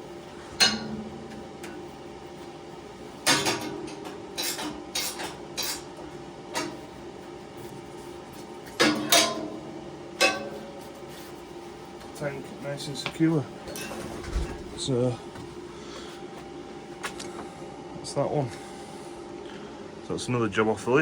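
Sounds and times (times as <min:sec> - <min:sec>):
metal clanks on steel tank: 0:00.6 - 0:01.8, 0:03.2 - 0:05.9, 0:08.8 - 0:09.6, 0:10.2 - 0:10.7.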